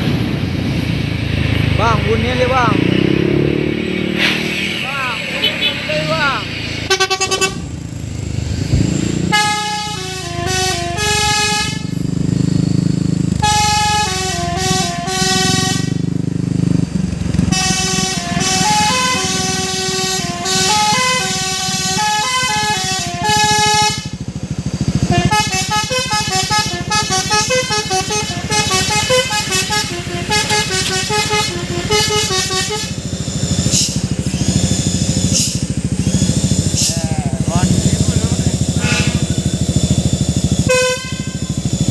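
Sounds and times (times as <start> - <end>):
truck engine running: 0.0 - 41.9
musical air horn tune: 6.8 - 7.8, 9.2 - 12.0, 13.4 - 16.0, 17.5 - 24.2, 25.0 - 33.1, 38.7 - 39.6, 40.6 - 41.7.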